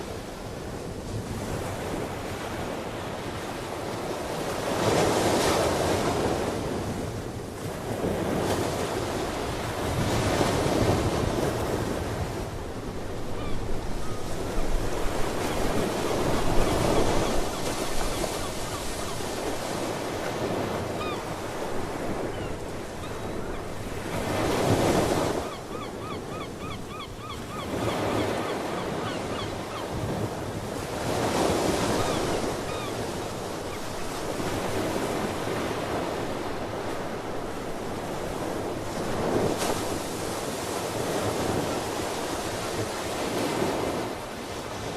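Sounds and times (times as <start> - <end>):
seabirds calling: 13.4 - 30.0, 31.2 - 34.6.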